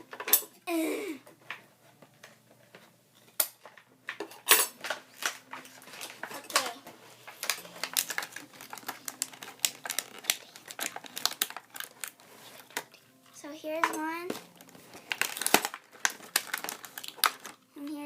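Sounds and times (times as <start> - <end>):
plastic packaging snapping open: 4.8 - 13.0, 13.8 - 17.6.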